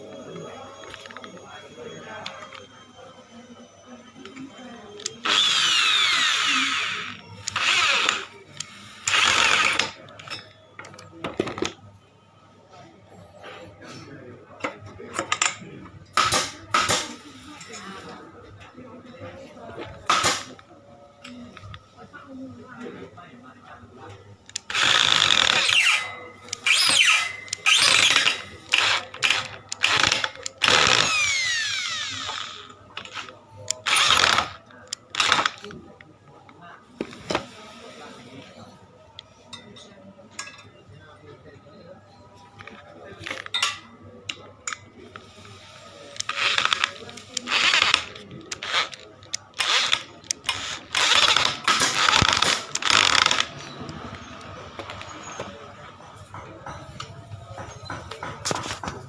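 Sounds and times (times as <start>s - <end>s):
drill-driven shredder whirring: 5.0s - 10.0s, 24.6s - 33.2s, 33.8s - 35.6s.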